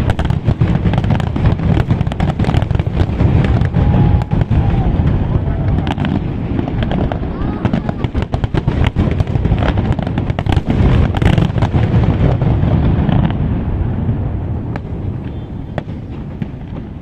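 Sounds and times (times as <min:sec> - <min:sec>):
single firework bangs: 0:00.0 - 0:14.1, 0:14.7 - 0:17.0
fireworks crackling and bursts: 0:00.0 - 0:17.0.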